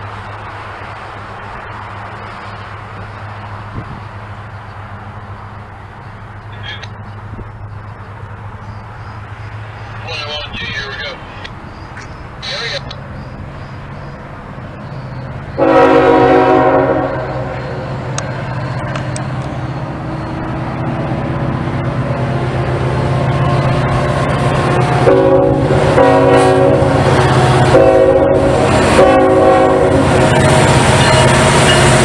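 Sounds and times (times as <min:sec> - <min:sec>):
locomotive drone: 0:00.0 - 0:32.0
train horn blasts: 0:15.6 - 0:18.0, 0:25.0 - 0:32.0.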